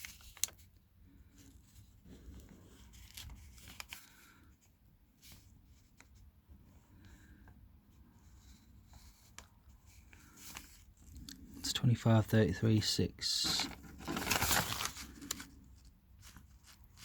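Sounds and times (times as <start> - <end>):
paper pages rustling: 0.0 - 0.7, 1.3 - 4.4, 8.3 - 11.2, 13.3 - 17.0.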